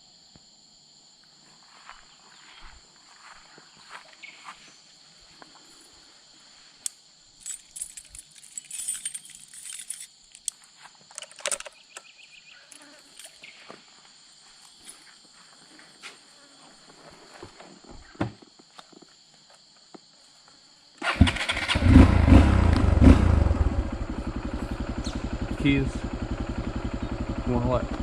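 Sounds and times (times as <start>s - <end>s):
insect chirring: 0.0s - 17.0s, 23.9s - 27.8s
clicking and rattling: 7.4s - 12.1s.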